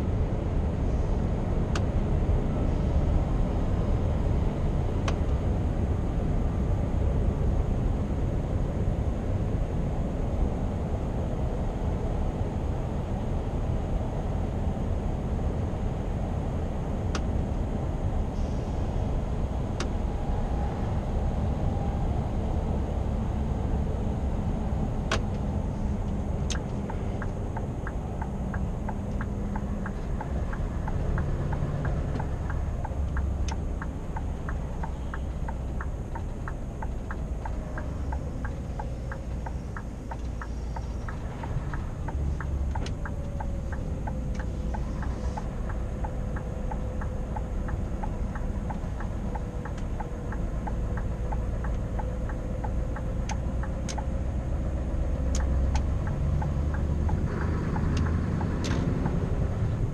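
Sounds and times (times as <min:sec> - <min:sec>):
truck engine rumbling: 0:00.0 - 0:59.9
turn signal ticking: 0:23.7 - 0:59.9.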